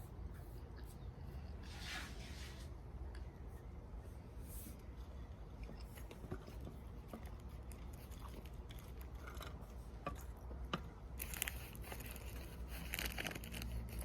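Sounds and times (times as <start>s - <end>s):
crinkling rustle: 11.2s - 14.0s.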